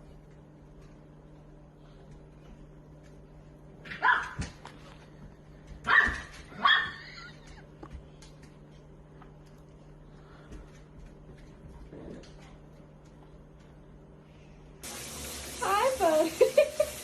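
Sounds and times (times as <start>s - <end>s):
dog barking: 3.9s - 4.4s, 5.9s - 7.0s.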